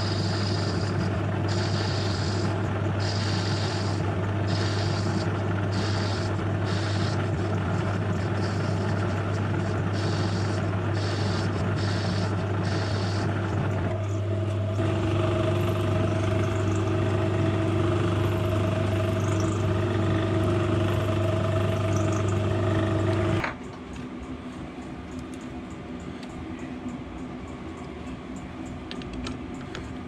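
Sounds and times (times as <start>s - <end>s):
metal lathe humming: 0.0s - 23.4s
steady whine: 0.0s - 30.0s.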